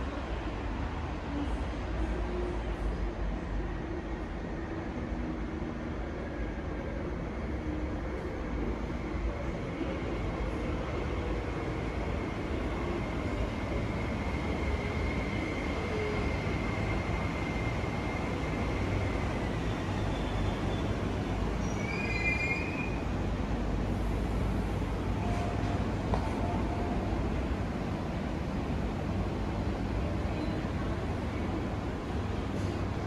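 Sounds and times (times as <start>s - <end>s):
train brake squeal: 21.6s - 23.1s
train rumble: 22.9s - 33.0s.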